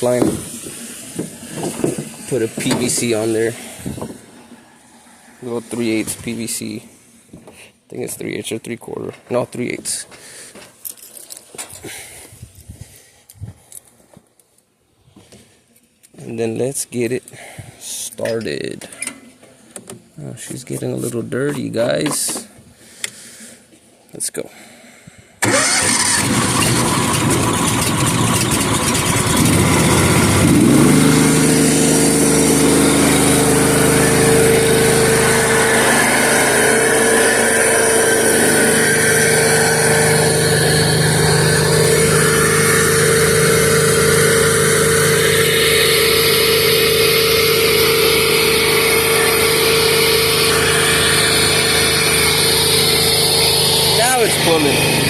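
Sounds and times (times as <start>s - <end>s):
pressure washer engine running: 0.0s - 6.6s, 25.4s - 55.0s.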